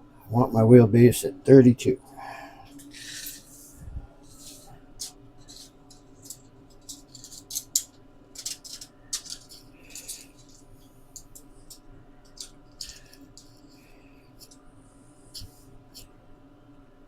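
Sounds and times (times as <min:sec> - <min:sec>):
low hum: 0:00.0 - 0:07.1
metal tools clicking and rattling: 0:04.4 - 0:13.7.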